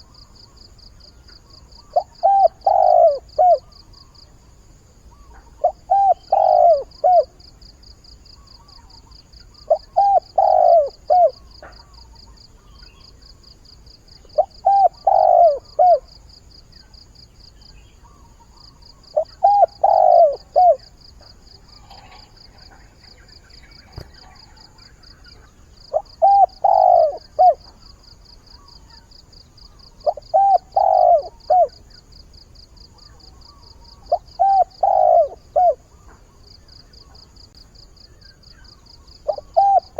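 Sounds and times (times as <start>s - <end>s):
dove cooing: 1.7s - 3.8s, 5.2s - 7.4s, 9.7s - 12.0s, 14.2s - 16.2s, 18.1s - 29.1s, 29.8s - 31.9s, 33.9s - 36.0s, 39.2s - 39.9s.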